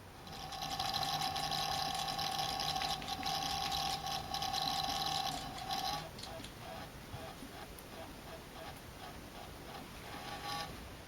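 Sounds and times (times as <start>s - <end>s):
motor buzzing whine: 0.2s - 7.7s.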